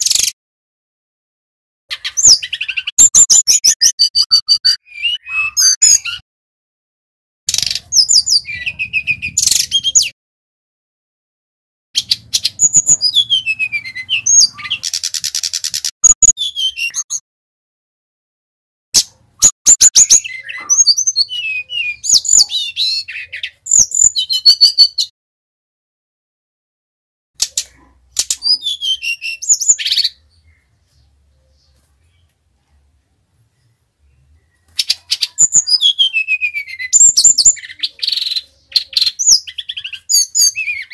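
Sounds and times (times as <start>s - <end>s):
flycatcher singing high chirps: 12.0s - 17.2s.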